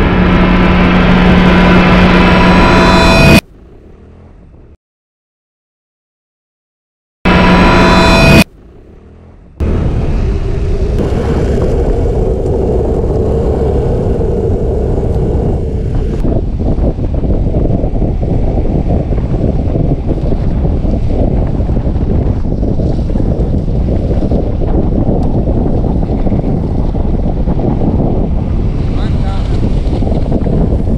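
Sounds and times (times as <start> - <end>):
steady drone: 0.0 - 3.9, 7.3 - 16.3
vehicle engine rumbling: 0.0 - 4.8, 7.3 - 30.9.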